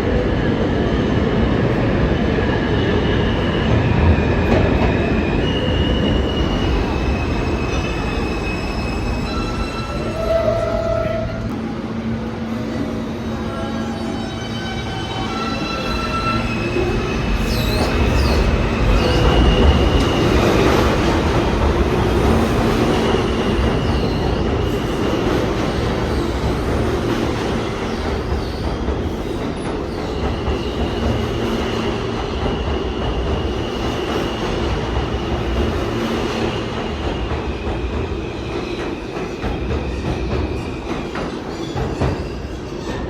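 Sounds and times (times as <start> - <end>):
train wheels rumbling on rails: 0.0 - 43.0
high wheel squeals: 5.4 - 11.4.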